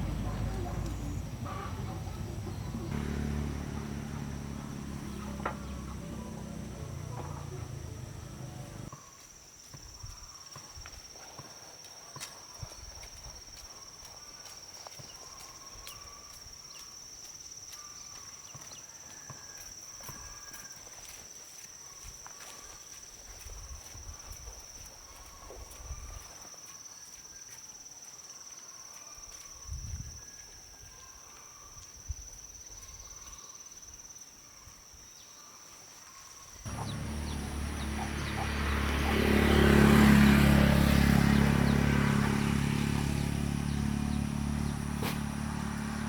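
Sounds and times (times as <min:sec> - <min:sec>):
low engine-like hum: 0:00.0 - 0:08.9, 0:36.7 - 0:46.0.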